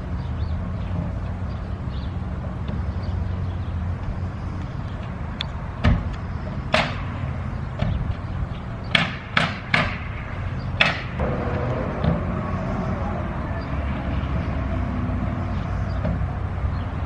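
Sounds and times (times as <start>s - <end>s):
steady low hum: 10.1s - 17.0s.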